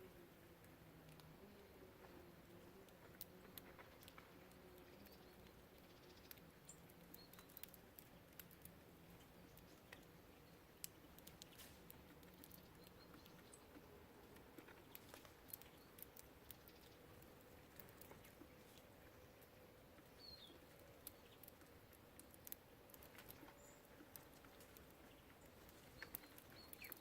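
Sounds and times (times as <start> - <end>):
light clicks and taps: 10.8 - 27.0
faint high bird chirps: 20.1 - 21.4, 25.1 - 27.0.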